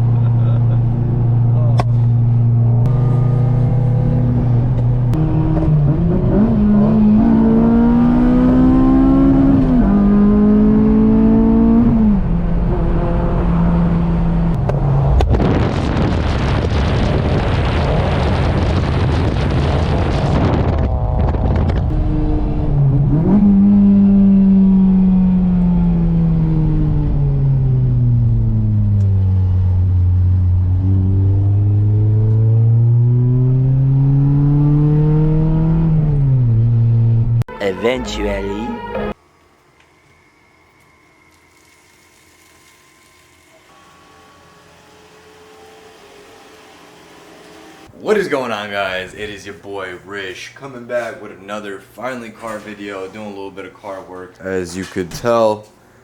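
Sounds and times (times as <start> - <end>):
car engine revving: 0.0 - 39.2.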